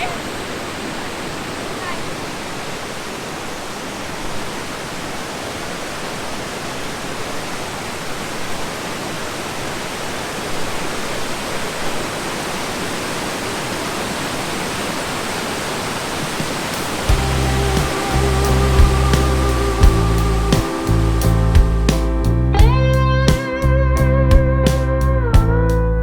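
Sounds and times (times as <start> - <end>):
waterfall rushing: 0.0 - 22.6
music with heavy bass: 17.1 - 26.0.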